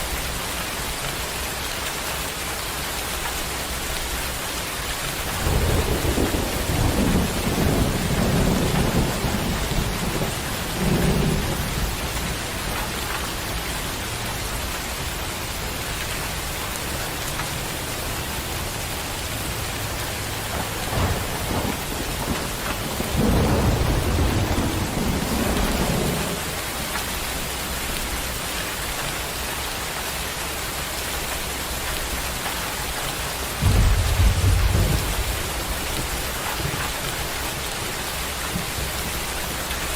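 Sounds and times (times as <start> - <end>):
heavy rain: 0.0 - 39.9
rolling thunder rumbles: 5.1 - 14.8, 19.4 - 27.4, 33.5 - 39.9
sharp thunderclap: 5.2 - 13.3, 20.3 - 26.5, 33.6 - 37.4.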